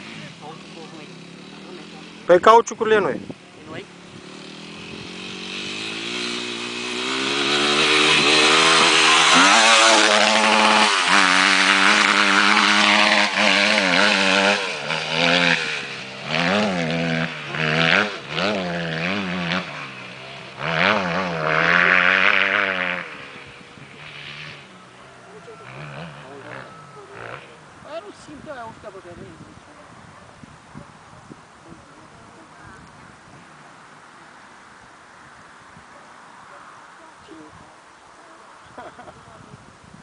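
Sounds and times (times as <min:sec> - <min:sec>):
motocross bike engine revving: 0:00.0 - 0:29.7.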